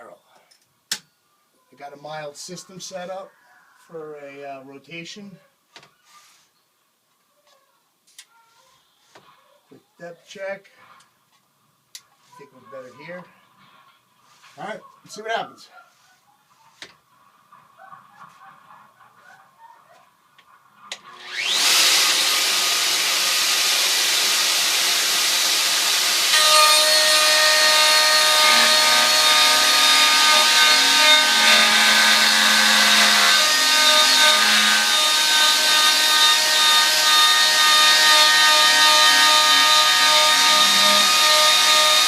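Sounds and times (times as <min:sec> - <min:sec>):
router bit cutting wood: 0:20.9 - 0:42.0
wood router whining: 0:20.9 - 0:42.0.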